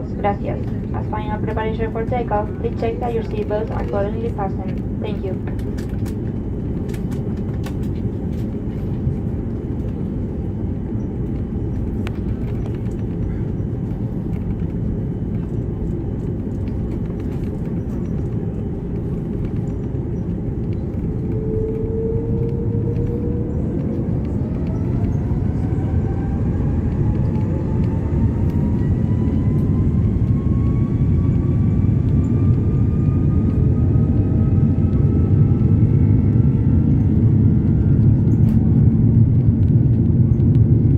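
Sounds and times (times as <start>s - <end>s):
aircraft cabin low rumble: 0.0s - 40.9s
jet engines spooling up whine: 0.0s - 40.9s.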